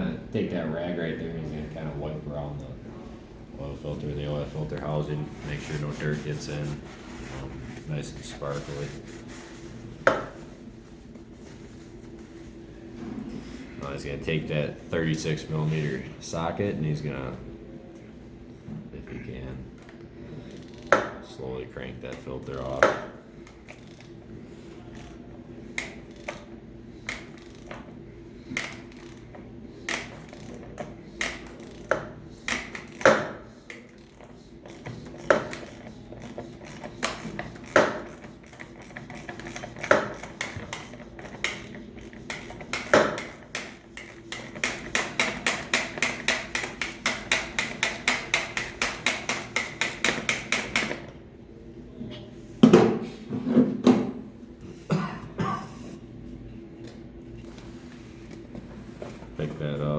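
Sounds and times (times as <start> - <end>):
ratchet clicks: 23.7 - 24.2, 27.0 - 27.8, 28.6 - 29.3.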